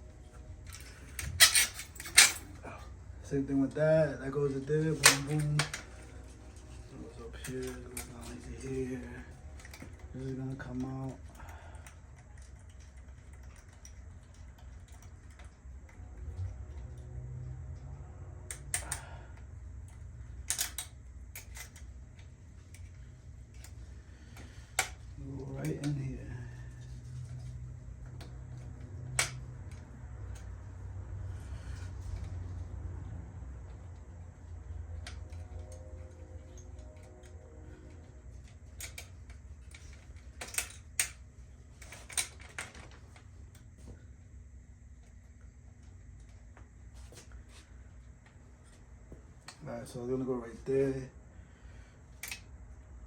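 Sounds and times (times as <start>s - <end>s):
low steady hum: 0.0s - 53.0s
metal bicycle parts clicking: 0.6s - 2.6s, 7.3s - 17.1s, 18.5s - 19.2s, 19.8s - 25.0s, 38.4s - 42.8s.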